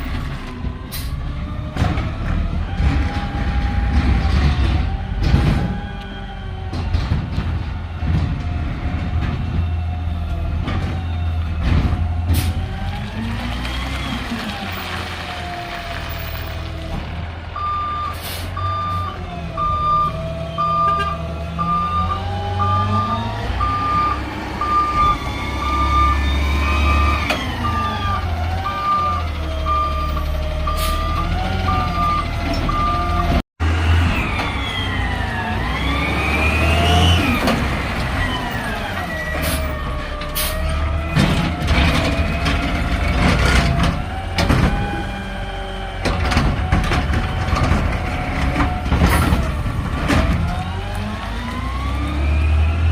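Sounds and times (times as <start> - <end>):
diesel engine revving: 0.0 - 52.9
backup alarm beeping: 17.6 - 33.2.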